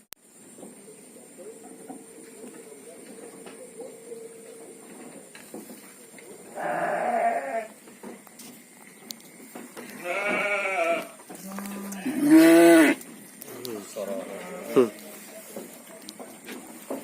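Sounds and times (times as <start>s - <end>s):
sheep bleating: 6.5s - 7.8s, 9.9s - 13.0s, 14.0s - 15.0s.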